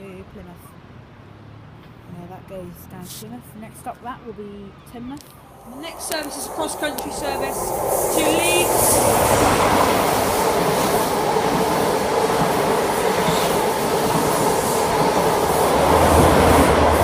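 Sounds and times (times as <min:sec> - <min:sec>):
low hum: 0:05.4 - 0:11.2
diesel train rumbling past: 0:05.4 - 0:17.0.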